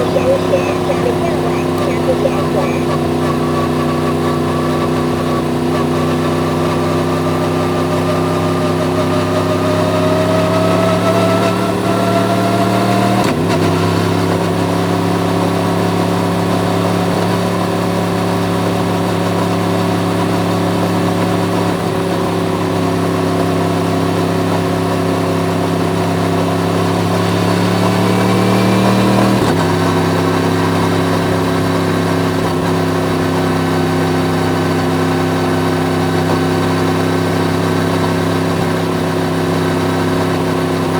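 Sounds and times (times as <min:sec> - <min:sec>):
motorcycle engine accelerating: 0:00.0 - 0:13.4.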